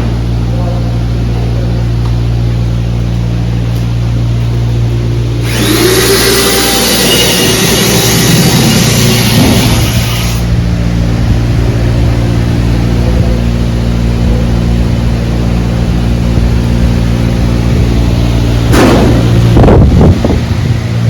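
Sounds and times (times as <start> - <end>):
low machine hum: 0.0 - 21.0
loud rushing noise: 17.2 - 21.0.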